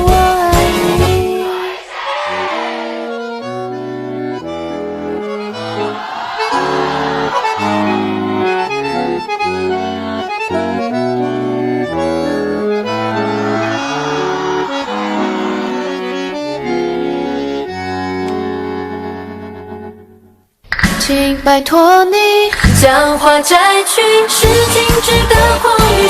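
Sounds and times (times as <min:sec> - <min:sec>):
accordion-led pop instrumental: 0:00.0 - 0:20.1.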